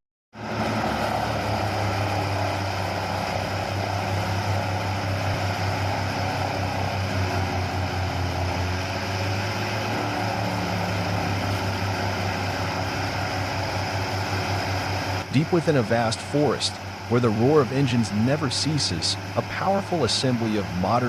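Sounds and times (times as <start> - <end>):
mobile crusher grinding wood: 0.4 - 15.2.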